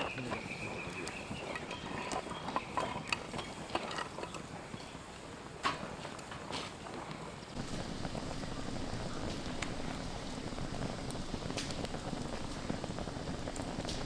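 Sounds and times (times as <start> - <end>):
campfire crackling and popping: 0.0 - 14.0
soft steady rushing noise: 7.5 - 14.0.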